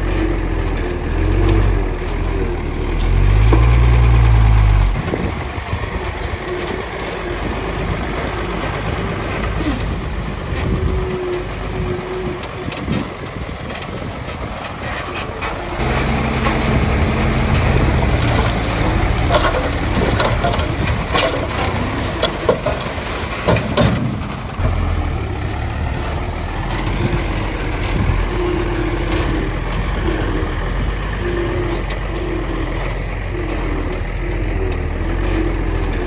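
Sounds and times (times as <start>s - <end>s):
diesel machinery running: 0.0s - 36.0s
metallic clanks and knocks: 15.2s - 25.4s.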